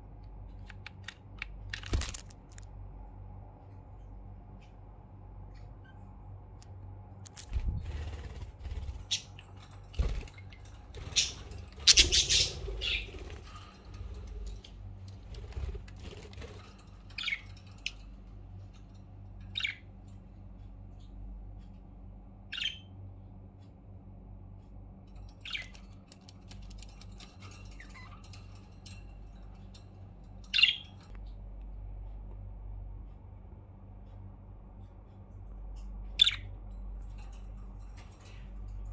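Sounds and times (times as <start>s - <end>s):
soft bird chirps: 10.1s - 14.8s, 17.0s - 18.2s, 19.4s - 20.2s, 22.4s - 23.0s, 25.2s - 28.6s, 30.3s - 31.4s
budgerigars chirping: 11.1s - 13.2s, 19.5s - 19.8s, 30.5s - 31.0s, 36.2s - 36.5s.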